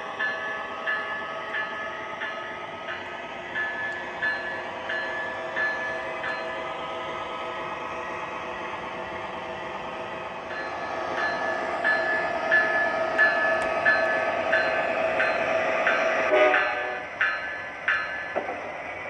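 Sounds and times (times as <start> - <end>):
model locomotive diesel engine: 0.0 - 19.0
locomotive bell ringing: 0.1 - 6.9, 10.5 - 18.9
locomotive horn blast: 16.3 - 17.1.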